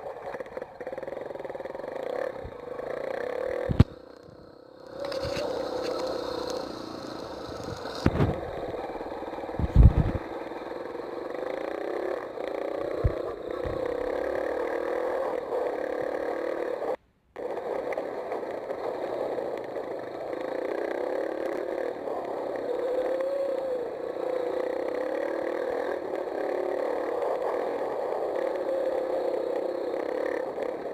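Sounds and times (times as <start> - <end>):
dirt bike engine: 0.0 - 22.0.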